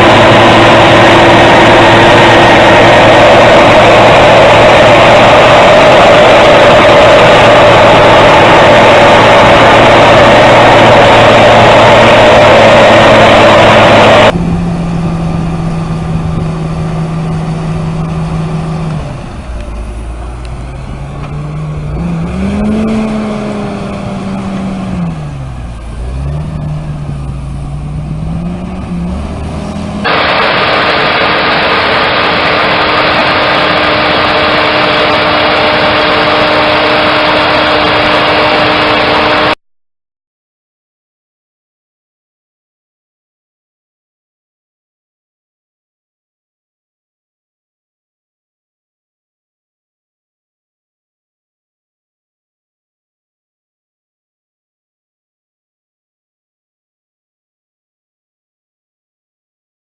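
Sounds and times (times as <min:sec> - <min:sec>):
engine revving up and down: 0:00.0 - 0:39.6
heavy equipment engines running: 0:00.0 - 0:39.6.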